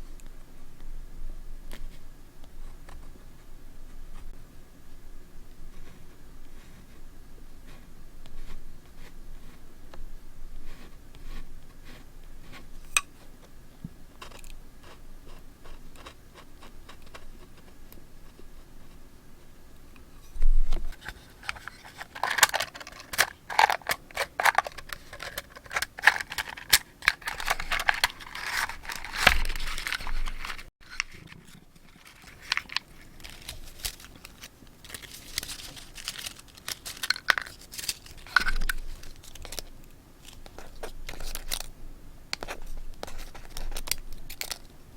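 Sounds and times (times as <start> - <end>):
paper crinkling and rustling: 20.9 - 41.7, 42.4 - 44.7.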